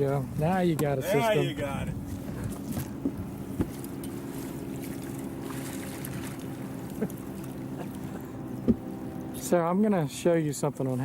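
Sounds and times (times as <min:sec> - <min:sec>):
boat motor idling: 0:00.0 - 0:11.0
light knocks: 0:02.8 - 0:04.2, 0:08.6 - 0:08.9.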